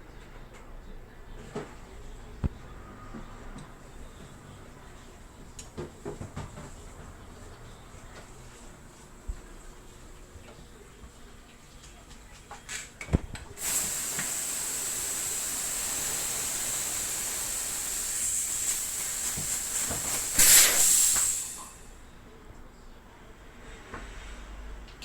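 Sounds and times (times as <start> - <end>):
valve click: 13.6 - 21.8
gas hissing from valve: 13.6 - 22.0.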